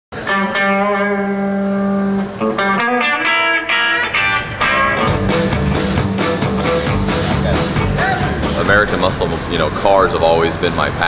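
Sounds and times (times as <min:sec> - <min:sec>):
electric guitar notes: 0:00.2 - 0:11.0.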